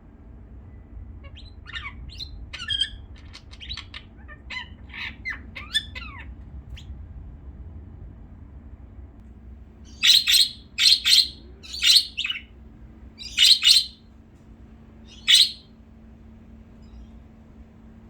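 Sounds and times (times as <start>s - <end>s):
pet bird harsh calls: 9.9s - 12.5s, 13.2s - 14.0s, 15.1s - 15.6s.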